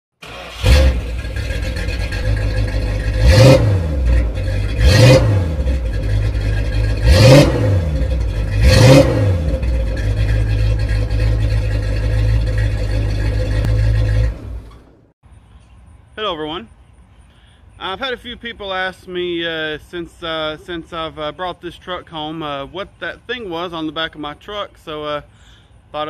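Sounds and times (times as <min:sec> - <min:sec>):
engine idling and revving: 0:00.2 - 0:15.1.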